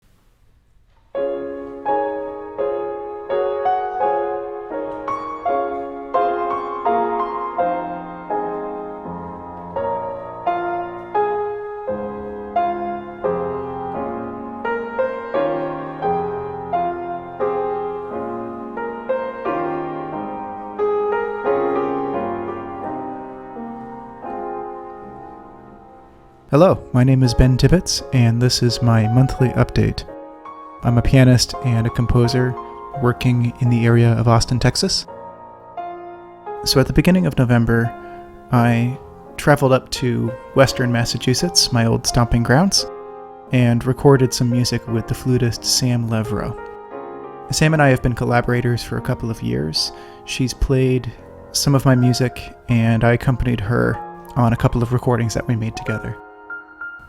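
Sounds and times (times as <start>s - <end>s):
slow piano chords: 0.0s - 57.0s.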